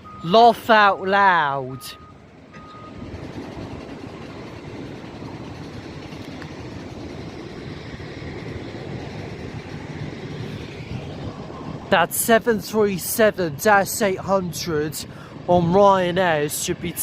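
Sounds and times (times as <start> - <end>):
rumble of engines and machinery: 0.0 - 17.0.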